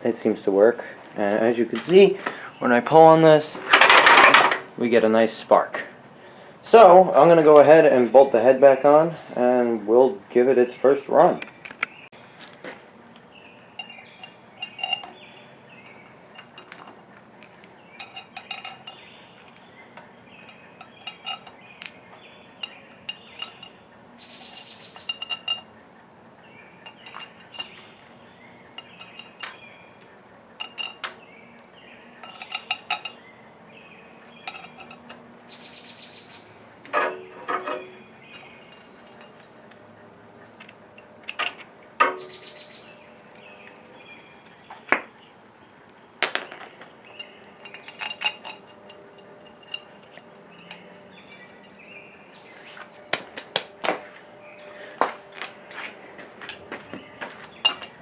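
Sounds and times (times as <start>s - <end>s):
metal tools clinking: 3.4s - 4.7s, 13.8s - 19.7s, 20.4s - 22.0s, 22.6s - 25.7s, 26.8s - 31.2s, 32.2s - 33.2s, 34.2s - 36.0s, 36.8s - 39.6s, 40.6s - 43.1s, 46.2s - 53.5s, 55.3s - 58.0s
metal clanks: 3.5s - 4.8s, 13.8s - 15.2s, 18.0s - 19.7s, 20.5s - 21.6s, 22.6s - 23.8s, 24.4s - 25.7s, 26.8s - 28.0s, 28.8s - 29.7s, 32.2s - 33.2s, 34.3s - 35.2s, 36.8s - 39.5s, 41.0s - 43.0s, 46.2s - 52.0s, 56.4s - 58.0s.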